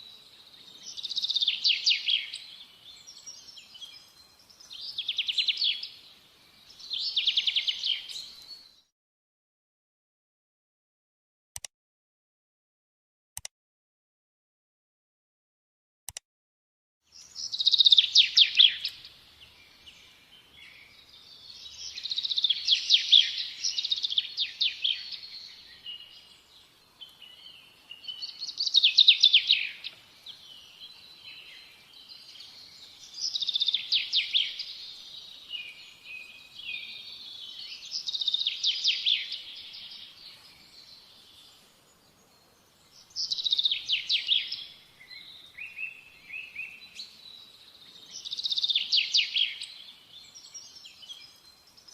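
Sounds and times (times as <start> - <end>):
songbird trilling: 0.8 - 3.9, 17.2 - 19.1, 33.0 - 40.1.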